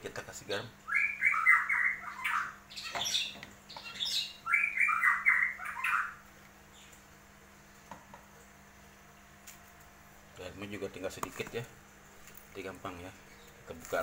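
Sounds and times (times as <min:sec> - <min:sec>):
bird calling: 0:00.8 - 0:07.0.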